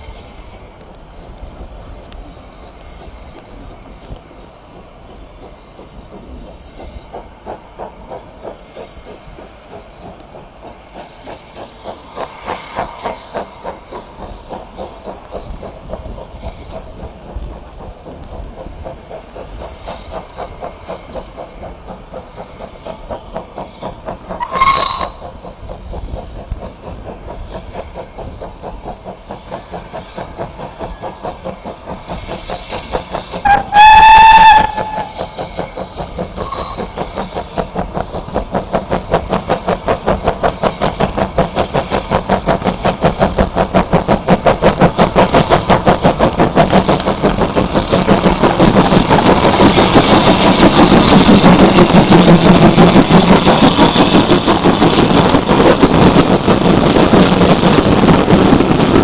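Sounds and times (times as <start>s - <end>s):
steam hiss: 0.0s - 59.0s
steam locomotive exhaust beats: 0.0s - 59.0s
steam locomotive whistle: 24.4s - 25.2s, 33.4s - 35.3s, 36.4s - 36.9s.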